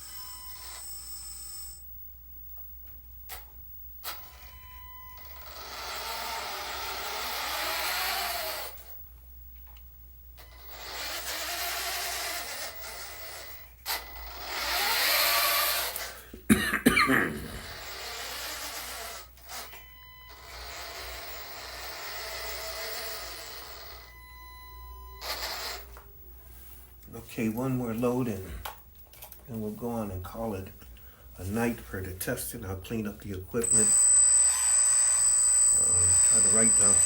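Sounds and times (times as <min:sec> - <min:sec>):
hydraulic pump whine: 0:00.0 - 0:01.9, 0:03.3 - 0:09.0, 0:10.4 - 0:16.2, 0:17.5 - 0:26.0, 0:33.6 - 0:37.0.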